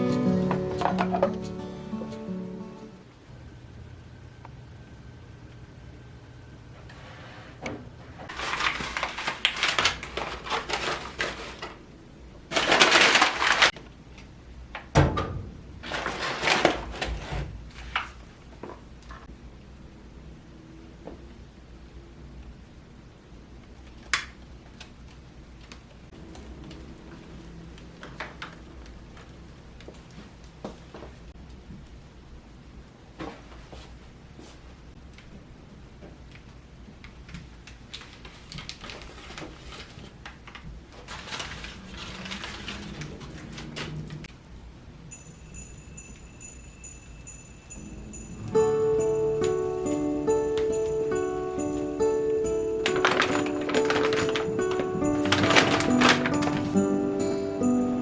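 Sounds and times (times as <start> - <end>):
rustling handling noises: 0.0 - 2.9, 8.3 - 11.9, 12.5 - 13.8, 37.7 - 44.0, 45.1 - 58.0.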